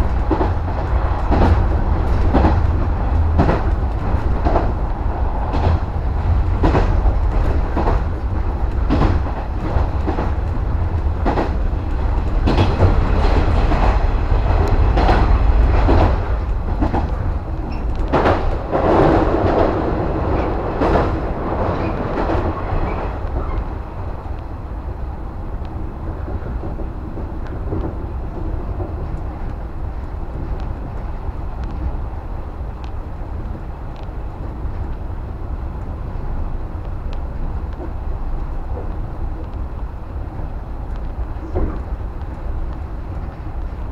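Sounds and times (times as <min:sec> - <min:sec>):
wheels clacking over rail joints: 0:00.0 - 0:24.4
train low rumble: 0:00.0 - 0:43.9.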